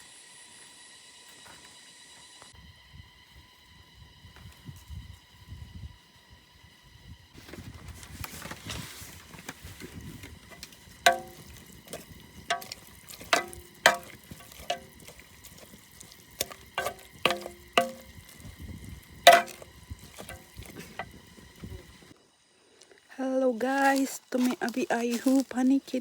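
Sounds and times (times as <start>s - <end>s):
sharp ringing knocks: 10.5s - 18.6s, 19.3s - 21.8s.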